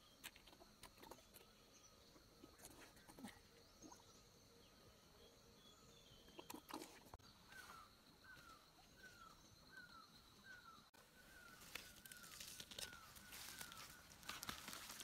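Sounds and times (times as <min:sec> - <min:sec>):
footsteps and rustles on soil: 0:07.2 - 0:15.0.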